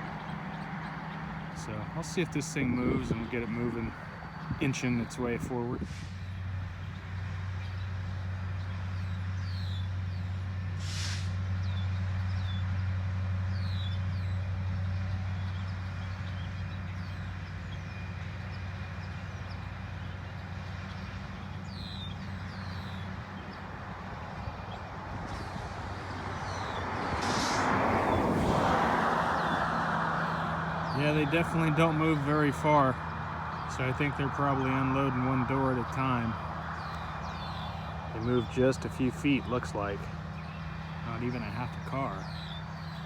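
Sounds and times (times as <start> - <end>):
diesel locomotive engines humming: 0.0 - 43.0
air hisses: 10.8 - 11.5, 25.2 - 29.2.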